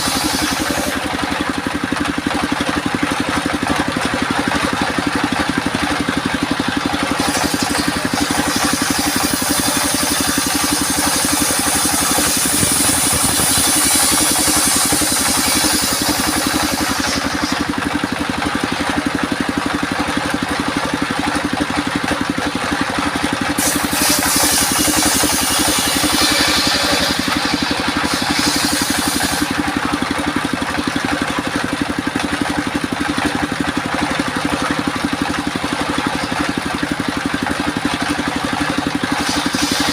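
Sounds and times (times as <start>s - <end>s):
circular saw blade cutting wood: 0.0s - 3.4s, 4.9s - 19.1s, 23.0s - 31.9s, 38.6s - 39.9s
sawmill engine pulsing: 0.0s - 39.9s.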